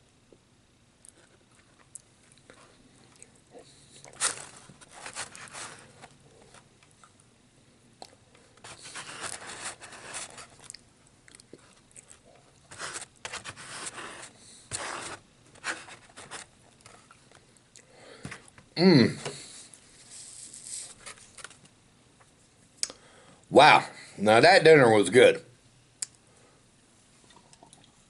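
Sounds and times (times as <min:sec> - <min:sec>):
biting and chewing: 0:01.1 - 0:07.2, 0:08.0 - 0:14.3.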